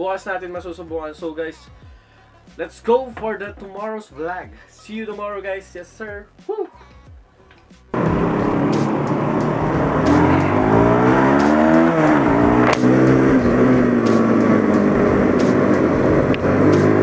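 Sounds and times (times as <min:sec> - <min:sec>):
motorcycle engine accelerating: 0:08.0 - 0:17.0.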